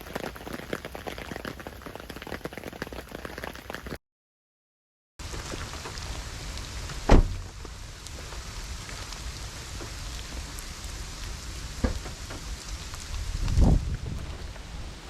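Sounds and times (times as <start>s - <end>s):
steady rain falling: 0.0s - 4.0s, 5.2s - 15.0s
low thump: 7.1s - 7.5s.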